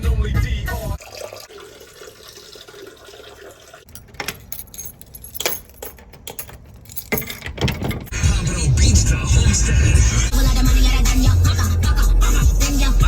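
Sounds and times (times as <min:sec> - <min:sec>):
small metal objects jingling: 0:03.9 - 0:08.2.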